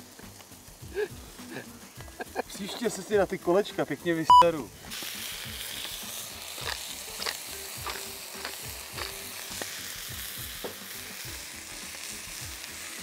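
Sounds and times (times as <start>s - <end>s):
patties sizzling on a grill: 0.0s - 13.0s.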